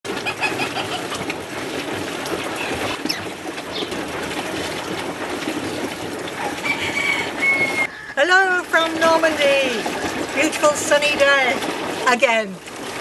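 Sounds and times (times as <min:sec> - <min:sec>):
birds chirping: 0:02.6 - 0:04.1.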